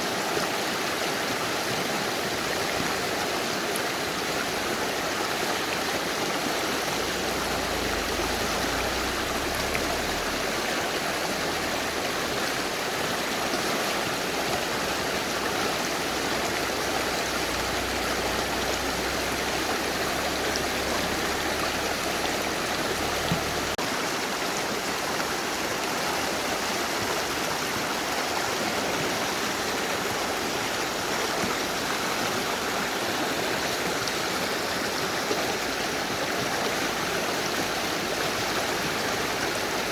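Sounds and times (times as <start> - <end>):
river rushing over rocks: 0.0 - 39.9
low rumble: 6.8 - 11.9.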